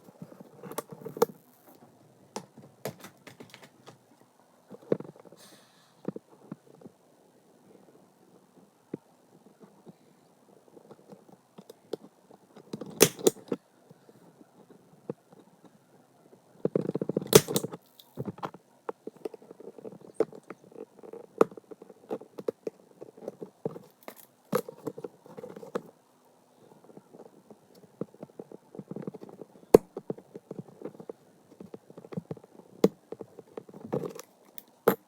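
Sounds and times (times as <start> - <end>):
paper rustling: 2.9 - 4.0
sharp snaps: 13.0 - 13.5, 17.3 - 18.1.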